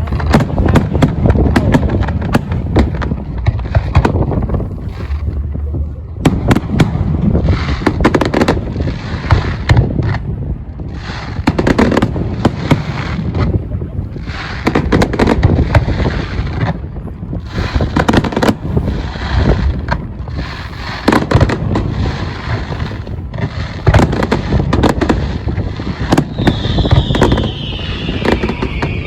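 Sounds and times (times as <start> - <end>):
fireworks bangs and crackling: 0.0 - 29.0
falling firework whistle: 26.0 - 29.0.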